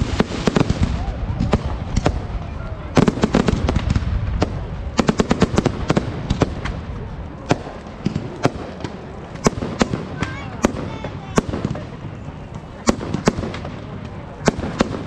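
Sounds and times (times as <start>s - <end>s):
fireworks cracks and bangs: 0.0s - 15.0s.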